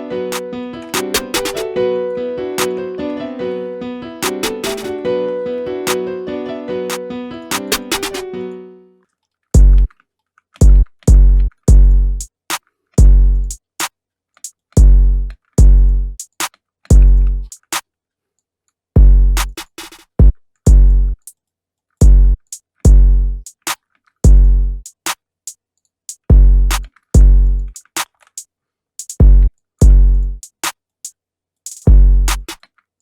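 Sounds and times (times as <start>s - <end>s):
hi-hat and snare hits: 0.3s - 1.8s, 4.2s - 5.0s, 5.9s - 6.1s, 6.9s - 8.3s, 9.6s - 9.9s, 10.6s - 17.8s, 19.0s - 21.4s, 22.0s - 32.6s
hi-hat roll: 0.3s - 1.8s, 4.2s - 5.0s, 6.9s - 8.3s, 13.0s - 17.8s, 19.3s - 21.3s, 26.1s - 32.6s
deep bass hits: 9.6s - 9.9s, 10.6s - 12.2s, 13.0s - 13.5s, 14.8s - 16.2s, 16.9s - 17.4s, 19.0s - 19.4s, 22.0s - 23.4s, 24.3s - 24.8s, 26.3s - 27.6s, 29.2s - 30.3s, 31.9s - 32.4s.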